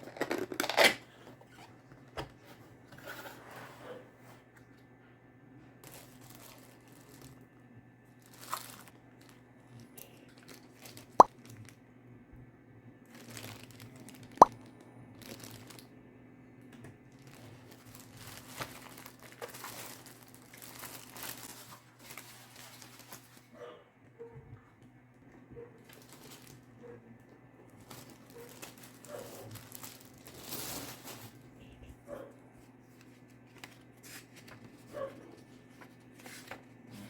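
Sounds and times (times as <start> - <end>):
packaging rustling and crinkling: 0.0 - 3.2, 5.8 - 7.5, 8.2 - 11.8, 13.1 - 15.9, 17.1 - 23.5, 25.8 - 26.7, 27.8 - 31.5, 32.9 - 36.7.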